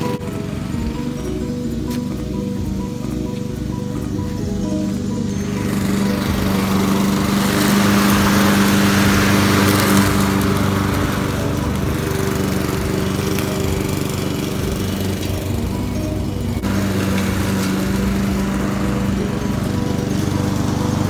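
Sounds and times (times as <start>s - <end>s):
lawn mower running: 0.0s - 21.0s.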